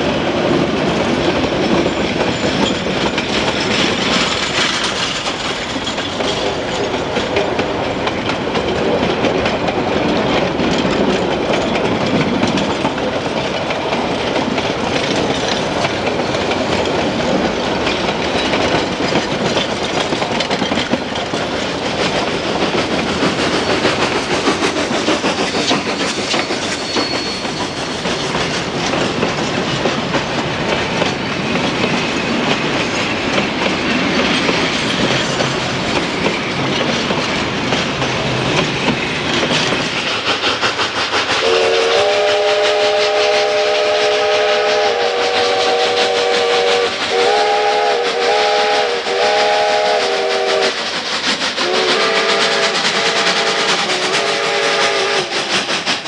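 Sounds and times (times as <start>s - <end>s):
steady train rumble: 0.0s - 56.0s
train wheels clacking over rail joints: 0.0s - 56.0s
steam locomotive whistle: 41.3s - 56.0s.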